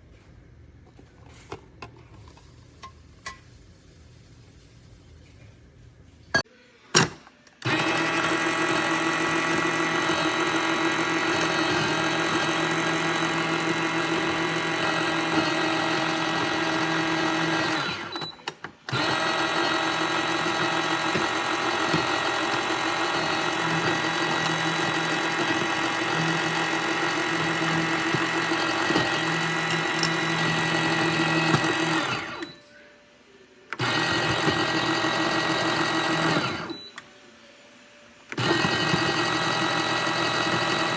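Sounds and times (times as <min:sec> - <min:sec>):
espresso machine humming: 0:07.7 - 0:18.2, 0:18.9 - 0:32.5, 0:33.8 - 0:36.8, 0:38.4 - 0:40.9.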